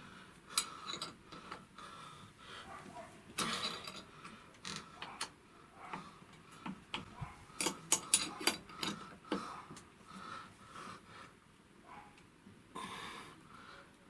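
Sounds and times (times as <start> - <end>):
hand tools clicking and clinking: 3.4 - 5.3, 6.9 - 9.0.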